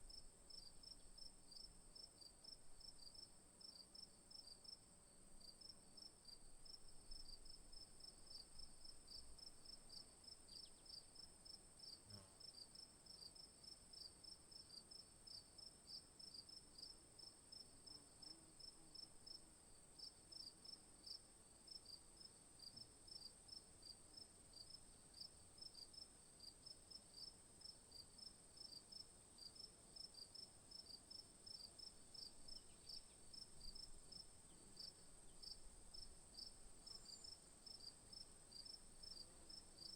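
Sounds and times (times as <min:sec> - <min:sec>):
insect chorus buzzing: 0:27.2 - 0:39.9
high insect chirps: 0:31.5 - 0:39.9.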